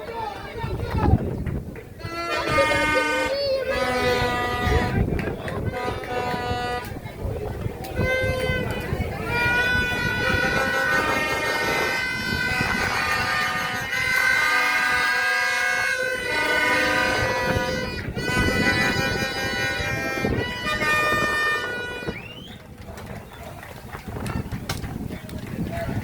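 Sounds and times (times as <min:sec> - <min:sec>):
horns blowing long blasts: 0:01.9 - 0:07.2, 0:07.9 - 0:22.7.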